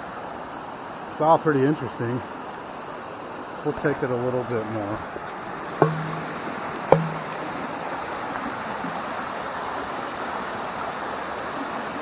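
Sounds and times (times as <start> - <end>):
sharp knock: 5.8 - 7.4.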